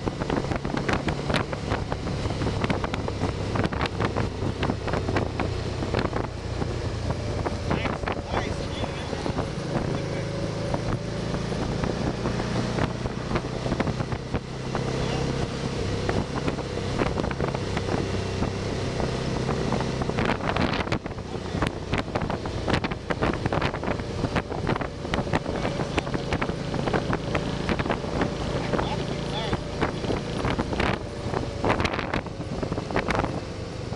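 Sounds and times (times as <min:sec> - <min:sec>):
motorcycle engine humming: 0:00.0 - 0:33.9
wind noise on microphone: 0:00.0 - 0:33.9.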